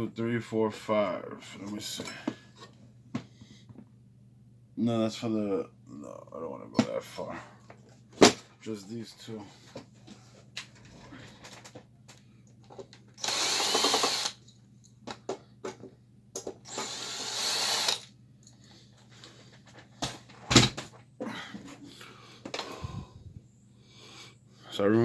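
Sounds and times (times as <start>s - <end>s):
powered screwdriver running: 13.2s - 14.4s, 16.7s - 18.1s.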